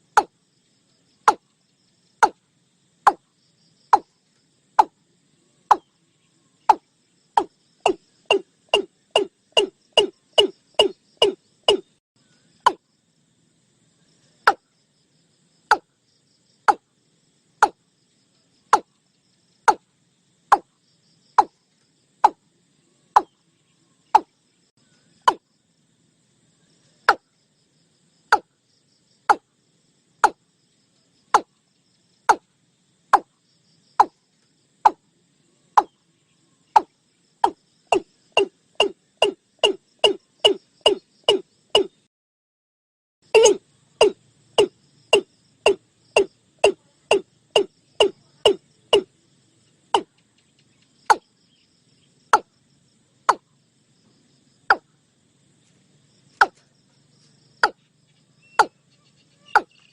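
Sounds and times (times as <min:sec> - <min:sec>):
hollow knocking bird call: 0:07.4 - 0:11.9, 0:36.8 - 0:41.9, 0:43.4 - 0:49.1, 0:59.5 - 0:59.7.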